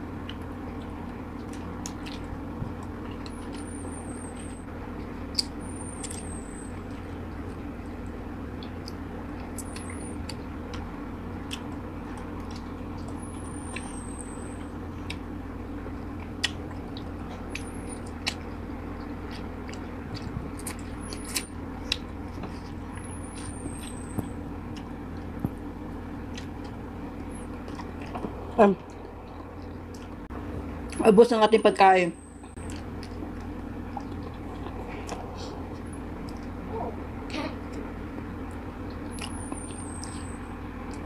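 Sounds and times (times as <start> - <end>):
steady low hum: 0.0 - 41.0
chewing and wet mouth clicks: 5.3 - 6.3, 8.6 - 10.8, 11.4 - 13.2, 16.2 - 22.6, 28.8 - 30.2, 32.5 - 35.3, 38.5 - 40.2.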